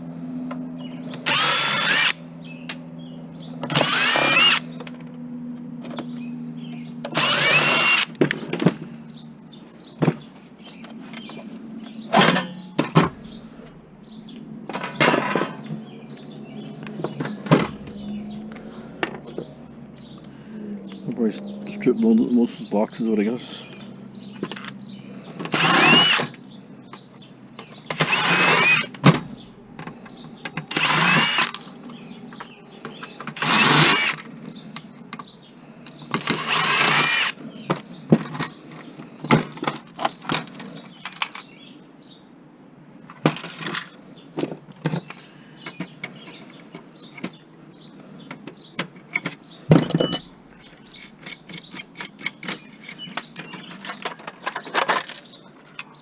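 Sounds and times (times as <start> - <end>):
cordless drill whining: 1.2 - 2.2, 3.7 - 4.7, 7.0 - 8.2, 25.4 - 26.3, 27.9 - 29.0, 30.6 - 31.7, 33.3 - 34.2, 36.1 - 37.4
metal screws clinking: 49.7 - 55.2.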